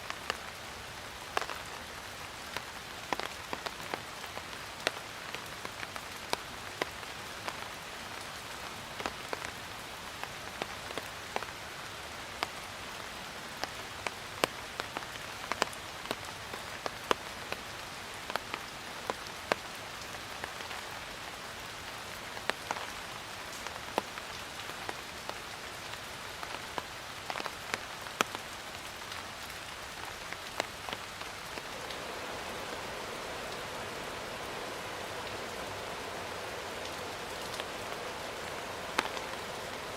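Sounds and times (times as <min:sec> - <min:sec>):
steady rain falling: 0:00.0 - 0:39.9
raindrops ticking on hard surface: 0:01.2 - 0:11.6, 0:13.6 - 0:39.9.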